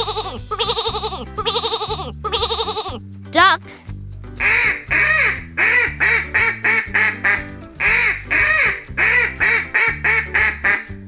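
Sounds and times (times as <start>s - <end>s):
light background music: 0.0s - 11.0s
duck quacking: 4.4s - 11.0s.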